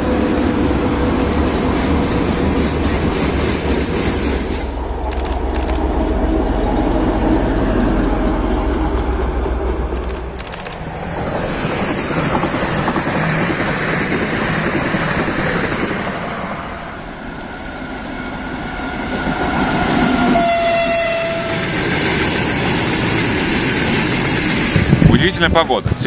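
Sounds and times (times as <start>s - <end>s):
electric train passing: 0.0s - 26.0s
freight train approaching: 0.0s - 26.0s
train horn blast: 20.2s - 21.9s.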